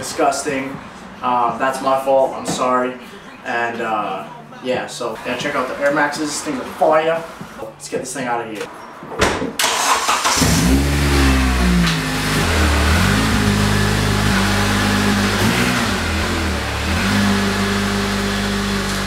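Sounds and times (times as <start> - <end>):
car engine revving: 9.6 - 19.0.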